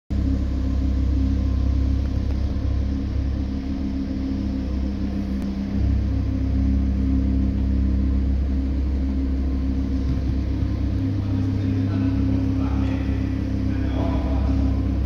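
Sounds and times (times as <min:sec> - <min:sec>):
car engine idling: 0:00.1 - 0:15.0.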